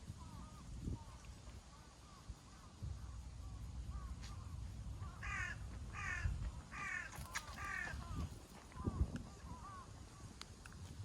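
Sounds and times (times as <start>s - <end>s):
crow cawing: 5.0s - 8.3s.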